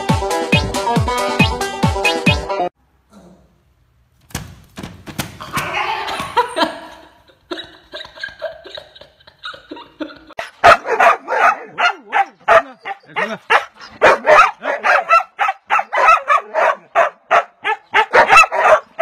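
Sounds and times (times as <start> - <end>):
person laughing: 5.6 - 10.6, 12.4 - 14.0
puppy yelping: 10.6 - 19.0.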